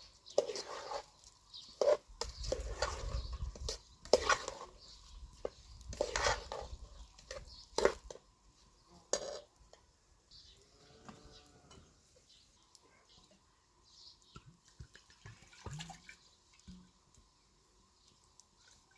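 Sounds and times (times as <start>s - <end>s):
utensils scraping and clinking cookware: 0.0s - 8.2s, 9.1s - 9.5s.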